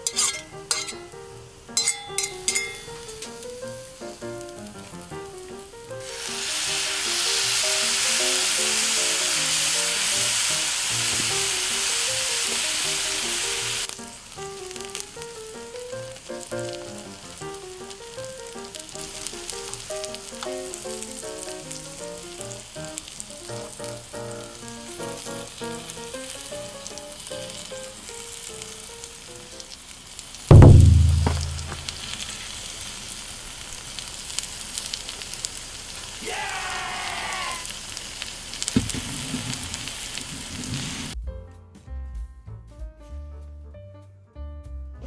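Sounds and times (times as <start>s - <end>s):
food sizzling in a pan: 0.0s - 5.2s, 5.9s - 41.2s
background music: 41.2s - 45.0s.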